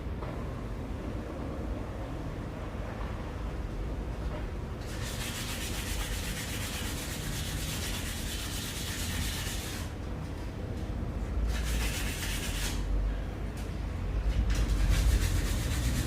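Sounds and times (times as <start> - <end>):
sanding metal: 4.9 - 9.9, 11.5 - 12.8, 14.7 - 16.0.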